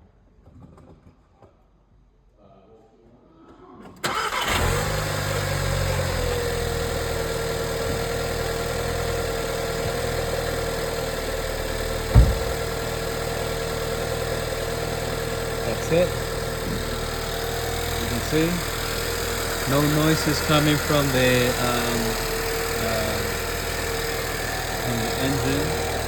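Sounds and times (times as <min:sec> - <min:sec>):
car engine starting and idling: 0:04.0 - 0:26.0
thump: 0:12.1 - 0:12.9.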